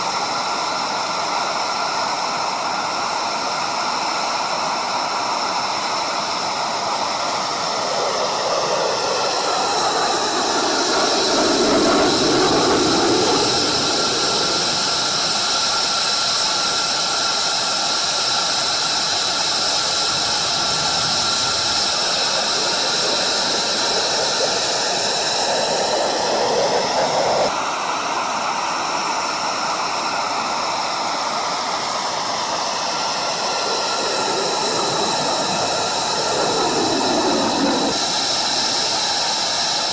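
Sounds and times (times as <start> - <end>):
fighter jet engines roaring: 5.8 - 27.8, 30.8 - 39.9.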